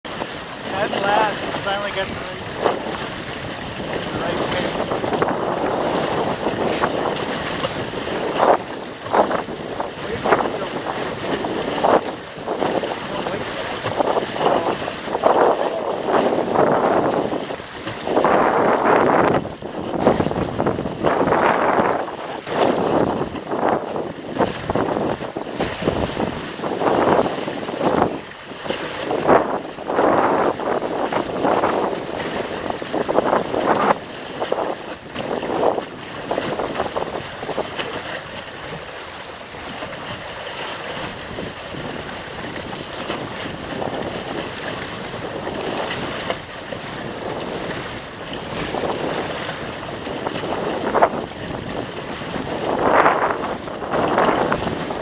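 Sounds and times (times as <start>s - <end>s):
water rushing against hull: 0.0s - 55.0s
wind buffeting microphone: 0.0s - 55.0s.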